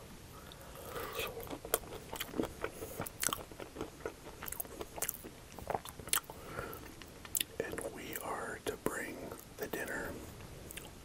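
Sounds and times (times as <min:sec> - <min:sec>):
crunchy chewing: 0:00.4 - 0:08.3.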